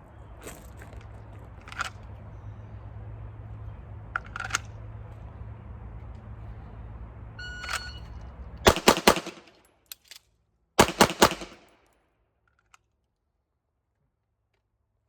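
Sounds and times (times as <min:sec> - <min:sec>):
handgun shots: 0:08.7 - 0:09.5, 0:10.8 - 0:11.7.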